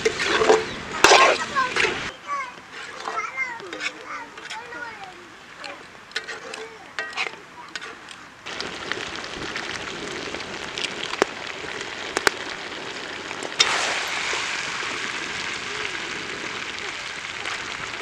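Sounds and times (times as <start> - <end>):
ladle clinking on a pan: 5.6 - 8.0
chicken sizzling in a pan: 8.5 - 18.0.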